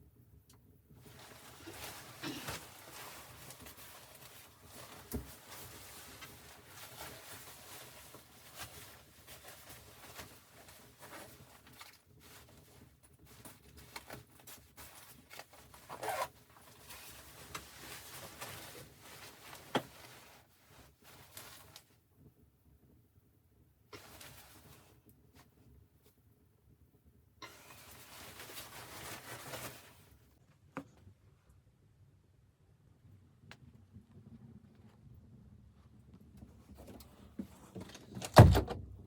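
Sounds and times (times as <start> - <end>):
rustling and scraping: 1.0 - 21.9, 27.4 - 31.0, 35.8 - 38.8.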